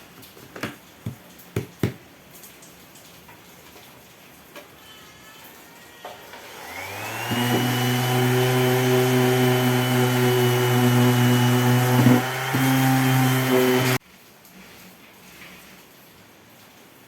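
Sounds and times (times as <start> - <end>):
power tool motor whining: 6.3 - 14.0.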